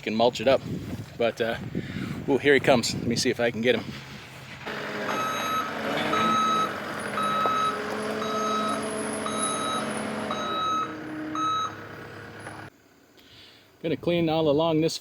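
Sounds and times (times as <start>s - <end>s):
skid steer engine running: 4.6s - 12.7s
backup alarm beeping: 4.8s - 12.7s.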